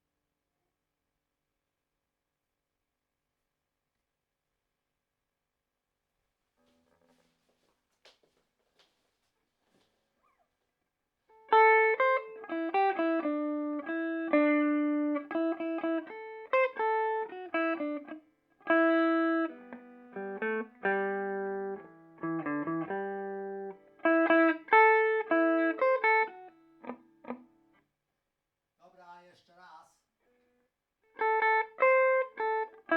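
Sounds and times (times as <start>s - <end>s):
clean electric guitar: 11.3s - 27.8s, 30.2s - 32.9s.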